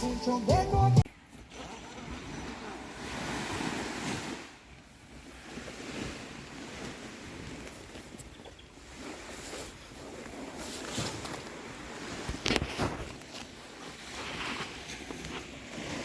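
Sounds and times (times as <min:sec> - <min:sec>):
music: 0:00.0 - 0:01.0
wind: 0:00.0 - 0:16.0
sea waves washing on shore: 0:01.5 - 0:16.0.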